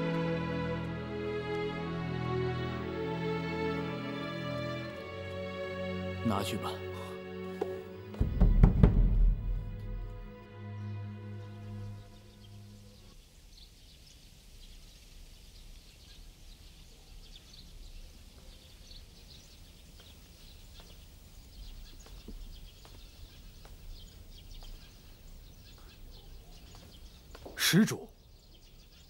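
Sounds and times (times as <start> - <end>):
held music chord: 0.0 - 13.1
small birds chirping: 9.8 - 29.0.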